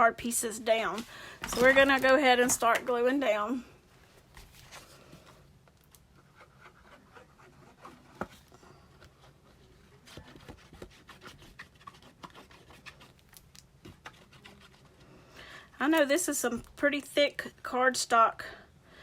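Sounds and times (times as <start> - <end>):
paper rustling and rubbing: 0.9 - 2.6, 6.2 - 15.1.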